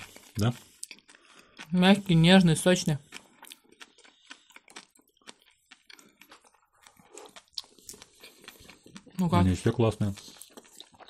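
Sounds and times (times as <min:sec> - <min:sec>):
person chewing with mouth clicks: 0:00.0 - 0:11.0.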